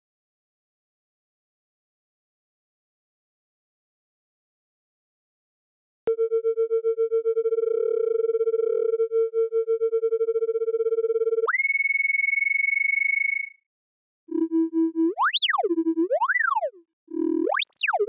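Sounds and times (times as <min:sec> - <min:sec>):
pulsing synthesizer tone: 0:14.3 - 0:18.0.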